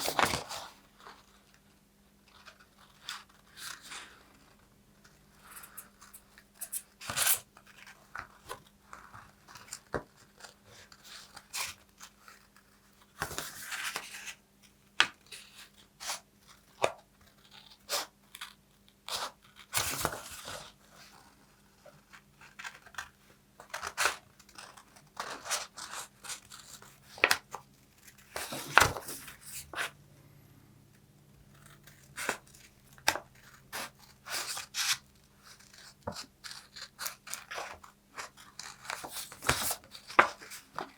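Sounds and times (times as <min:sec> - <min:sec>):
paper snipping and crinkling: 0:21.9 - 0:29.9, 0:31.4 - 0:40.9.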